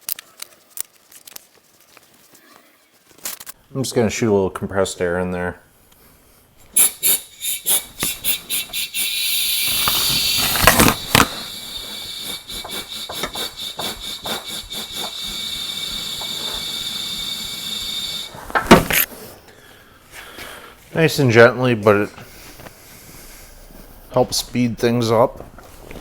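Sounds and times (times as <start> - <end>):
air blowgun puffs and hiss: 6.6 - 19.4.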